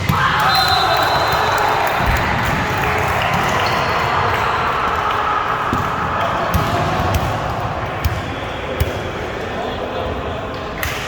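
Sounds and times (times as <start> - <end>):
hubbub of voices: 0.0 - 11.0
volleyball thumping: 5.7 - 9.2.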